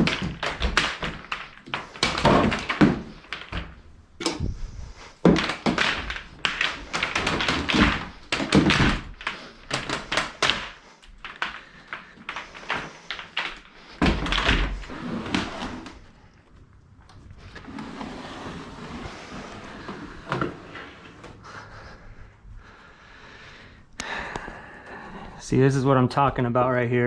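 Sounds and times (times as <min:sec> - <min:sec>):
household items knocking and clattering: 0:00.0 - 0:16.1.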